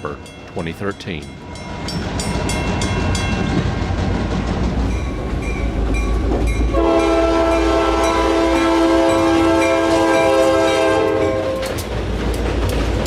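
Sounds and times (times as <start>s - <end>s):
diesel locomotive engine rumble: 0.0s - 13.0s
train wheel clatter: 1.7s - 13.0s
locomotive air horn: 6.7s - 11.8s.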